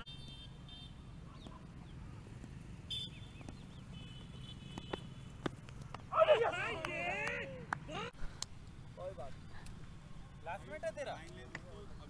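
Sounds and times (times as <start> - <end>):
birds chirping and whistling: 2.9 - 4.5.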